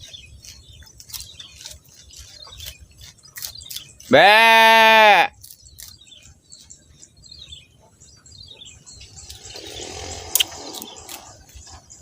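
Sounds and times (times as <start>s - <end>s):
faint bird chirps: 5.4s - 12.0s.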